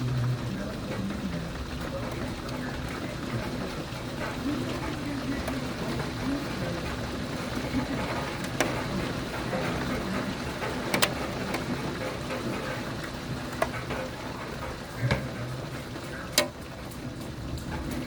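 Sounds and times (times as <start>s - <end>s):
heavy rain: 0.0s - 18.0s.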